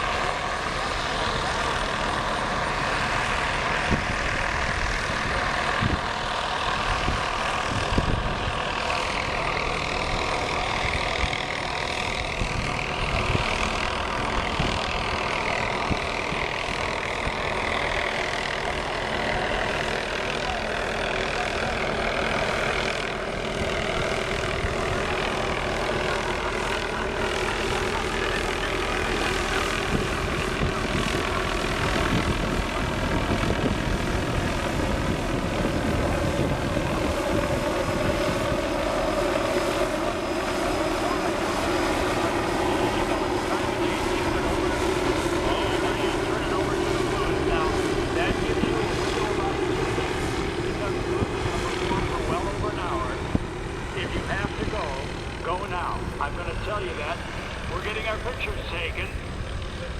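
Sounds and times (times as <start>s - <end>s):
helicopter turbine and rotor: 0.0s - 59.9s.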